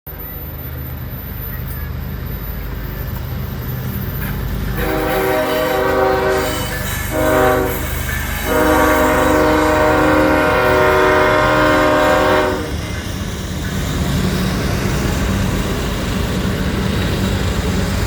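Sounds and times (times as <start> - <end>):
train rumble: 0.1 - 18.0
locomotive air horn blasts: 4.8 - 12.9.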